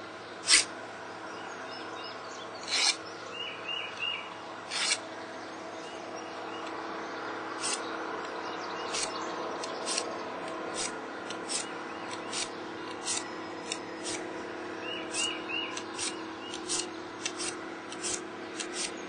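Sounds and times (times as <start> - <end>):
steel file rasping on blade: 0.5 - 0.7, 2.6 - 3.0, 4.7 - 5.0, 7.6 - 7.8, 8.9 - 9.2, 9.8 - 10.1, 10.7 - 14.2, 15.1 - 19.0.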